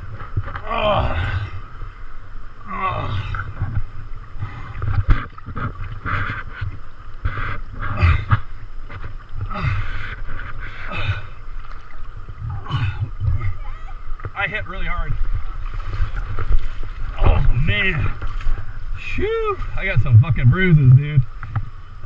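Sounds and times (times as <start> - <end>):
wind rumble on microphone: 0.0 - 22.0
water splashing from paddling: 2.7 - 20.0.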